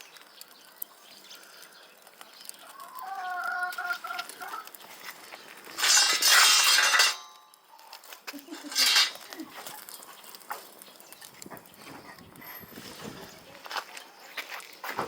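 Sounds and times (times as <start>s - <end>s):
chicken calling: 2.6s - 4.8s.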